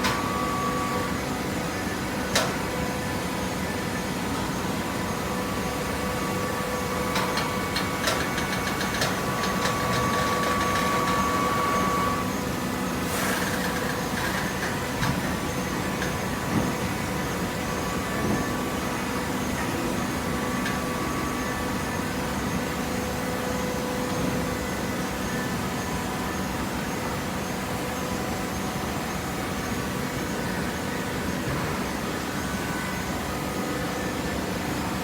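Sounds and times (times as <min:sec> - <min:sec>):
paper baler machine hum: 0:00.0 - 0:35.0.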